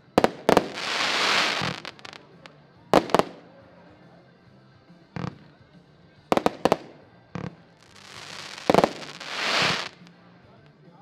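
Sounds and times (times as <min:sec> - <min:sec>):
fireworks banging: 0:00.0 - 0:02.2, 0:06.4 - 0:10.1
fireworks hissing crackle: 0:00.0 - 0:02.4, 0:07.8 - 0:10.2.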